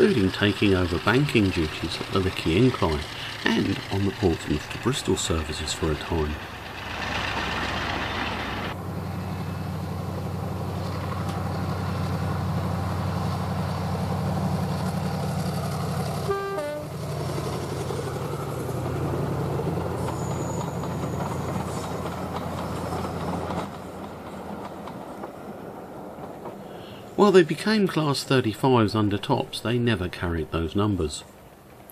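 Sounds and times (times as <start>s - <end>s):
diesel locomotive engine running: 0.0s - 31.9s
locomotive horn toot: 16.2s - 17.2s.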